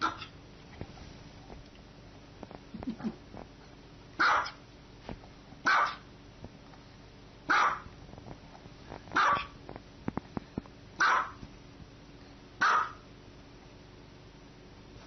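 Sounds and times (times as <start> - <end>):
small dog barking: 0.0 - 0.3, 4.2 - 4.6, 5.6 - 6.1, 7.5 - 7.9, 9.2 - 9.6, 11.0 - 11.4, 12.6 - 13.1.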